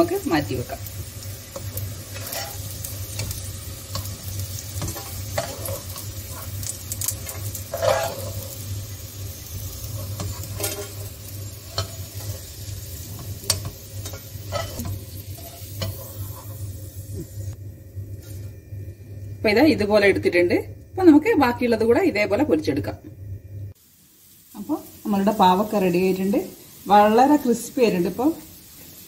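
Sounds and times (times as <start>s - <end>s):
frying in oil sizzling: 0.0s - 17.6s, 23.7s - 29.0s
steady low hum: 0.0s - 23.8s
metal spoon clinking and scraping: 1.6s - 8.6s, 9.8s - 16.6s.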